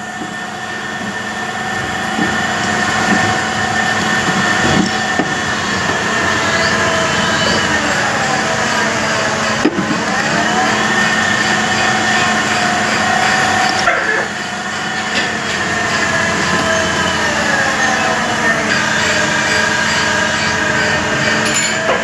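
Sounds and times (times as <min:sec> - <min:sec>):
machine tool whining: 0:00.0 - 0:22.0
metal clink: 0:21.4 - 0:22.0.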